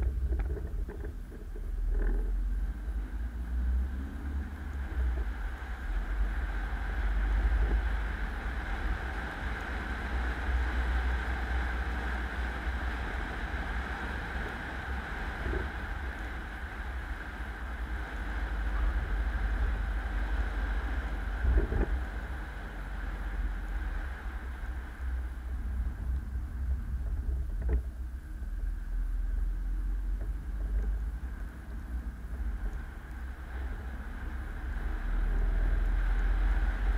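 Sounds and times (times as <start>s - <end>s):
low knocks from road bumps: 0.0s - 2.6s, 21.3s - 22.4s, 25.7s - 28.4s
road and wind noise: 0.0s - 36.9s.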